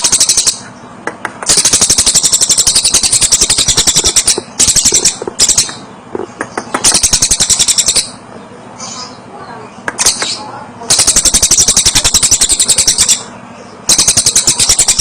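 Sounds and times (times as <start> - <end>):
kingfisher rattling trill: 1.5 - 5.8, 6.8 - 8.2, 10.0 - 13.3, 13.9 - 15.0.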